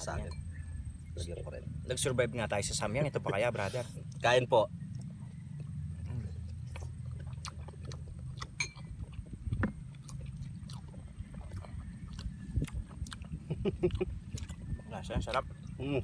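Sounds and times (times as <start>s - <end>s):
steady low rumble: 0.0s - 16.0s
people chewing food: 3.1s - 16.0s
mouth smacks and clicks: 6.7s - 14.7s.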